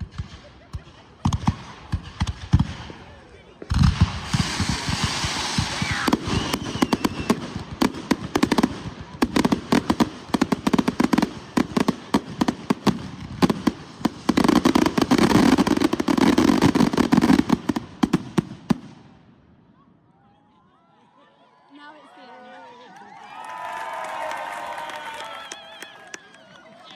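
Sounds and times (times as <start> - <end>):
fireworks crackling: 0.0 - 19.2
rising firework whistle: 4.0 - 7.6.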